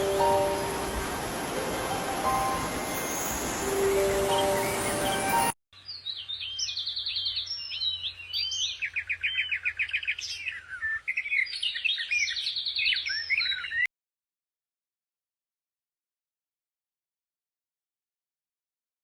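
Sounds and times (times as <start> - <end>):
songbird singing: 0.0 - 13.9.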